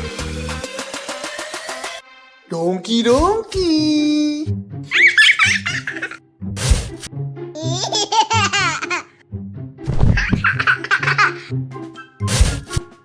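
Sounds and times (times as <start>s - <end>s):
baby laughing: 4.9s - 6.2s, 7.6s - 9.1s, 10.2s - 11.5s
bouncy children's music: 4.9s - 6.2s, 7.5s - 9.2s, 10.0s - 13.0s.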